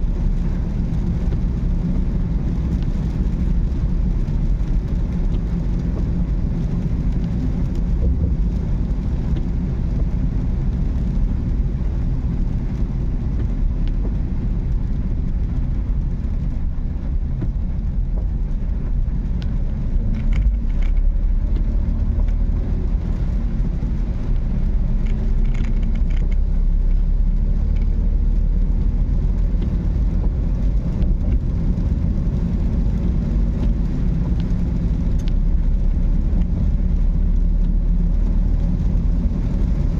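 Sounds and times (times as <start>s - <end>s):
car engine rumble: 0.0s - 39.9s.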